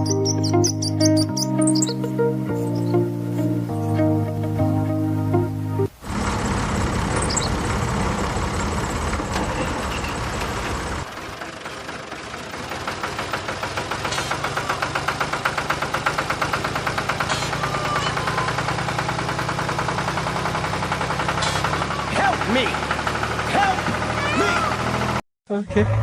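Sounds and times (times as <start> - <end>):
engine chugging: 6.0 - 26.0.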